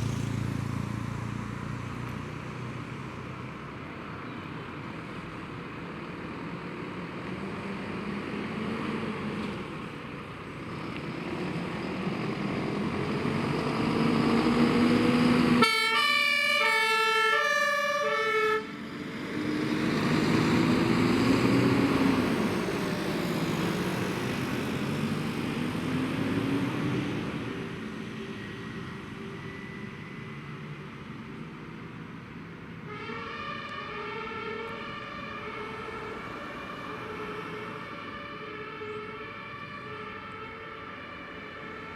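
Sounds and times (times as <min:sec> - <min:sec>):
fire truck engine revving: 0:06.1 - 0:30.3
two-tone siren: 0:14.9 - 0:18.8, 0:32.8 - 0:41.9.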